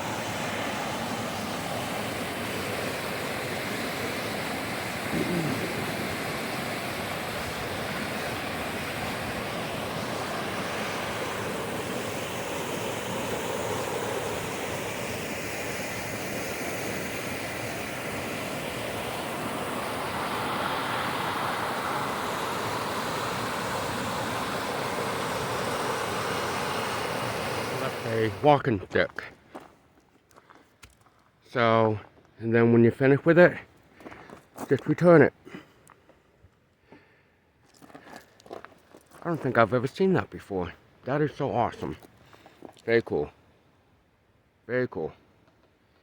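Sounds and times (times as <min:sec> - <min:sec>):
water rushing down a creek: 0:00.0 - 0:28.7.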